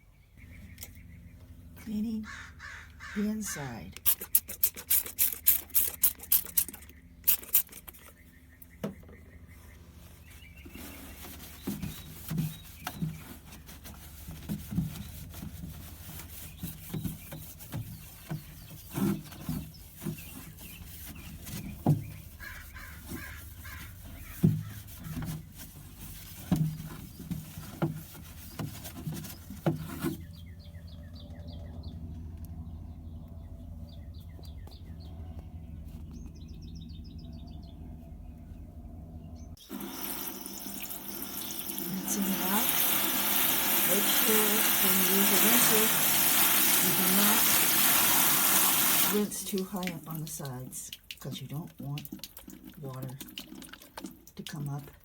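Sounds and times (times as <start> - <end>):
rubbing and scrubbing strokes: 4.0 - 8.2, 9.7 - 30.4, 41.0 - 50.3.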